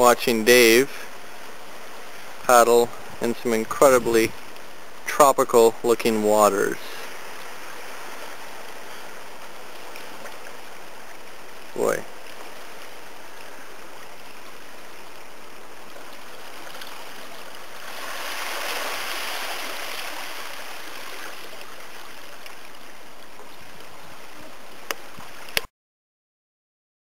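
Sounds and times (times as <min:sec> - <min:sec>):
water rushing at the shore: 0:00.0 - 0:25.7
wave washing in: 0:11.8 - 0:22.5.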